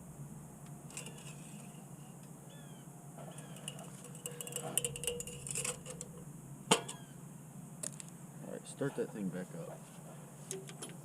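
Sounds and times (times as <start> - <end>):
low steady background hum: 0.0 - 11.0
light clinks and ticks: 3.3 - 6.2.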